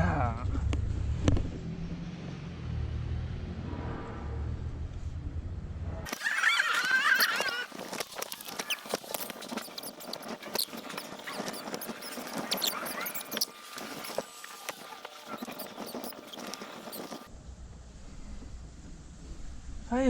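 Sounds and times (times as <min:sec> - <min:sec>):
cat crying: 0:06.1 - 0:08.9
hands scraping and rustling in engine bay: 0:06.1 - 0:17.3.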